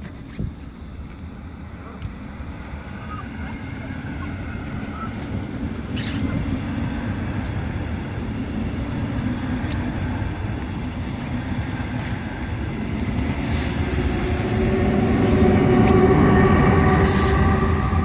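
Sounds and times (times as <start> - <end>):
passenger train rumbling past: 0.8 - 18.0
high-pitched wheel squeal: 13.4 - 18.0.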